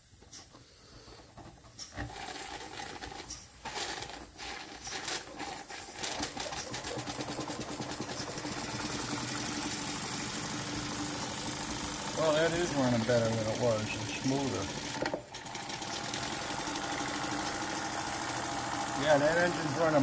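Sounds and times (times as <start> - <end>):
small generator whirring: 2.0 - 20.0
model steam engine running: 6.5 - 20.0.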